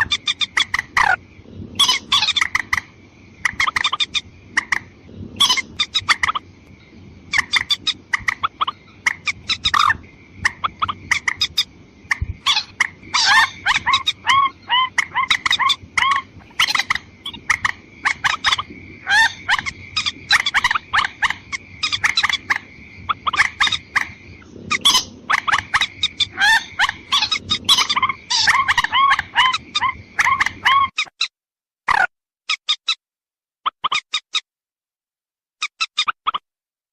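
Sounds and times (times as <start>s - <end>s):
bird calls: 0.0s - 31.3s.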